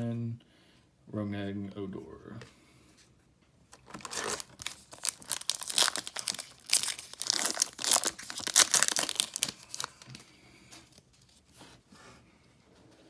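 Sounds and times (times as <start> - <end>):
foil wrapper tearing and crinkling: 3.8 - 10.2.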